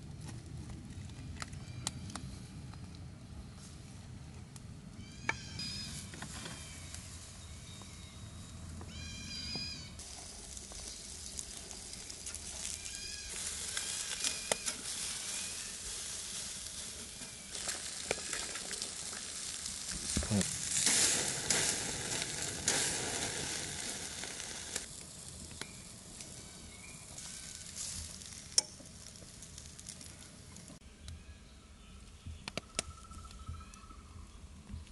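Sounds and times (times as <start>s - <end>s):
food sizzling in pan: 10.0s - 30.2s.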